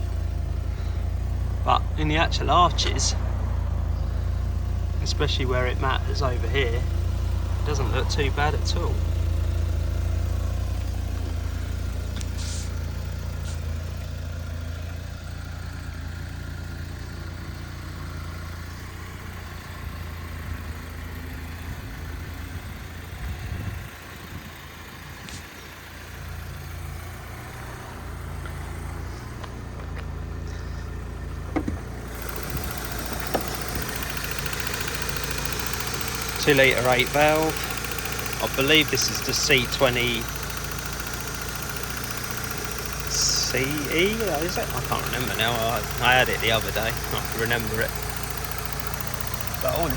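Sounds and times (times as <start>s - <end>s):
car engine idling: 0.0s - 49.9s
light knocks: 31.5s - 31.9s.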